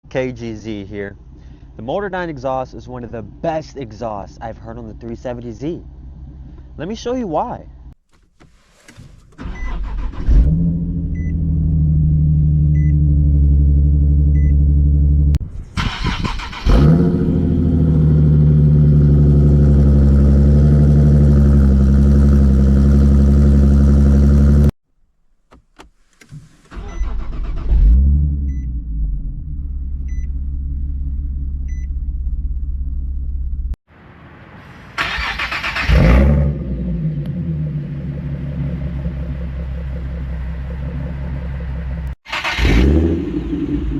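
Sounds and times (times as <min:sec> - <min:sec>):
car engine revving and idling: 0:09.6 - 0:24.8, 0:26.9 - 0:33.8, 0:35.2 - 0:43.9.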